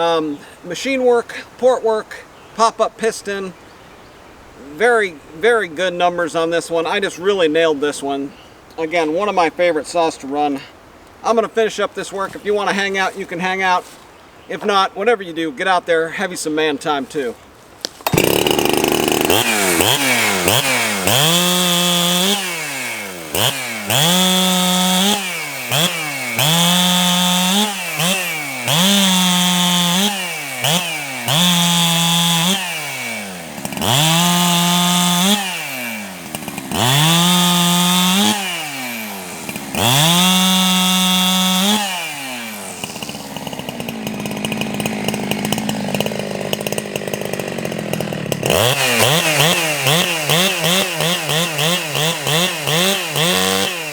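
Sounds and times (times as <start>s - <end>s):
chainsaw revving while cutting wood: 18.0s - 53.9s.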